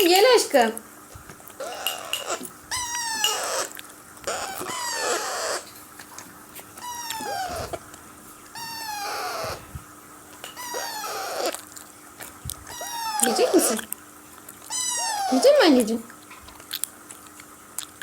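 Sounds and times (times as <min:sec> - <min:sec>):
parakeet chicks begging calls: 0:01.5 - 0:05.8, 0:06.7 - 0:07.9, 0:08.5 - 0:09.7, 0:10.5 - 0:11.8, 0:12.6 - 0:14.0, 0:14.6 - 0:16.0.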